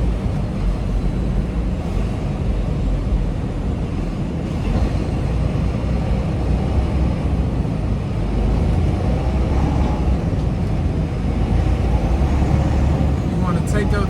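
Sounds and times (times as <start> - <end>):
diesel truck engine rumble: 0.0 - 14.0
road noise: 0.0 - 14.0.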